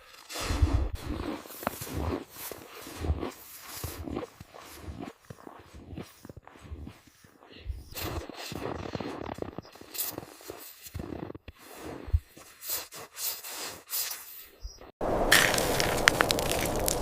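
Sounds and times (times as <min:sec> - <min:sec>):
fire crackling: 0:15.0 - 0:17.0
scuffing and thumping of movement: 0:15.0 - 0:17.0.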